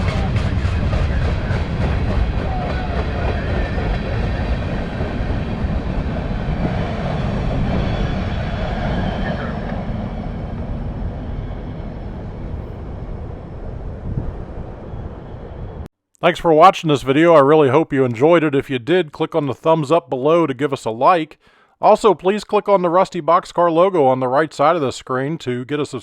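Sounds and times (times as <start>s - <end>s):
train wheels rumbling on rails: 0.0s - 15.9s.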